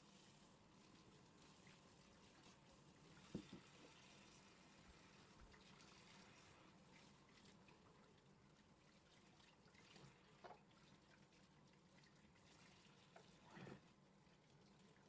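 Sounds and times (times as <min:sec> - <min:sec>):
soft brief knocks: 0:03.3 - 0:03.7.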